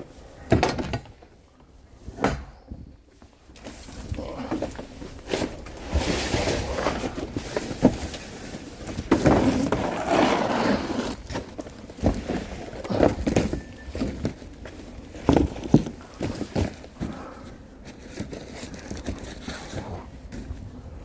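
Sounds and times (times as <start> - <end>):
rustling and scraping: 1.2 - 21.0.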